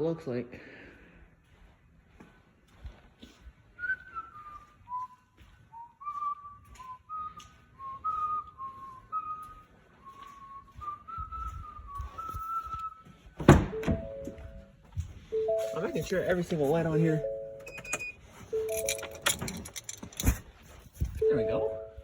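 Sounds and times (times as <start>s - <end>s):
person whistling a tune: 3.8s - 13.3s.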